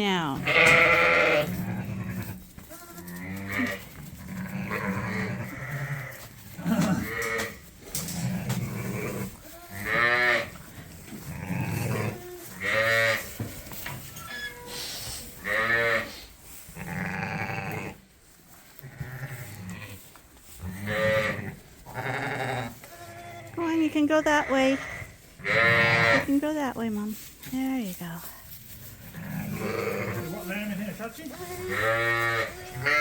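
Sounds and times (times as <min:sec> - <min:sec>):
sheep bleating: 0:00.4 - 0:07.6, 0:09.1 - 0:10.5, 0:11.3 - 0:13.3, 0:18.8 - 0:20.0, 0:20.7 - 0:23.6, 0:24.3 - 0:26.3, 0:29.2 - 0:30.6, 0:31.3 - 0:33.0.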